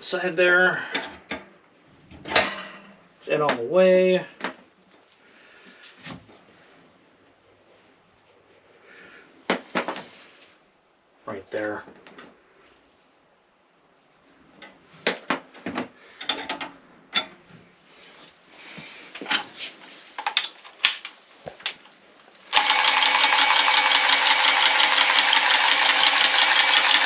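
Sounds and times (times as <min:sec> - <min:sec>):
small electric power tool running: 0:22.5 - 0:27.0.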